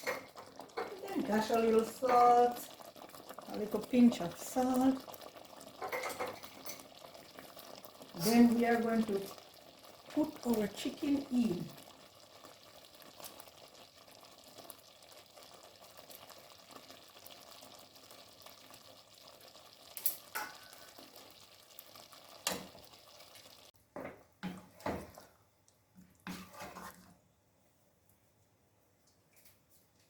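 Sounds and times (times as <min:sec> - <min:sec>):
sauce sizzling in a pan: 0:00.0 - 0:23.8
knocks and scrapes: 0:26.0 - 0:27.2.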